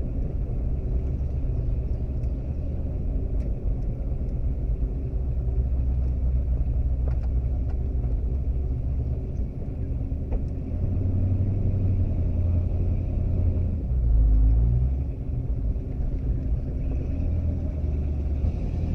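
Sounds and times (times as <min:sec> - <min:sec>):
car engine rumbling: 0:00.0 - 0:18.9.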